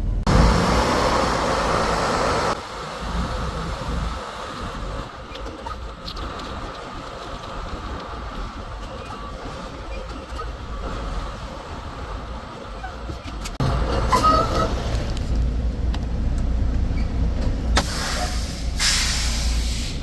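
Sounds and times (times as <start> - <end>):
truck engine and road rumble: 0.0 - 20.0
clicks and squeaks: 5.2 - 7.5, 8.4 - 10.9, 12.7 - 15.4, 16.9 - 17.5.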